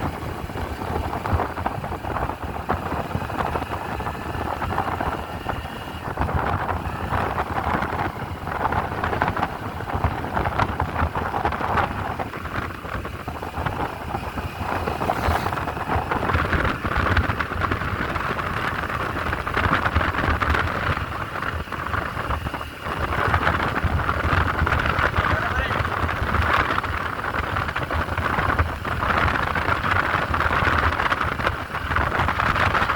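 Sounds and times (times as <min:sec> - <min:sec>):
motorcycle engine rumble: 0:00.0 - 0:32.9
road noise: 0:00.0 - 0:32.9
wind buffeting microphone: 0:00.0 - 0:32.9.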